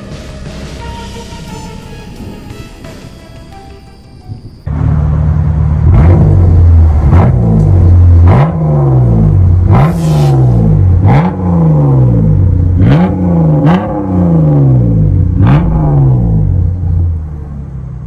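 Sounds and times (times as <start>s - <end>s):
car engine revving: 4.7s - 18.0s.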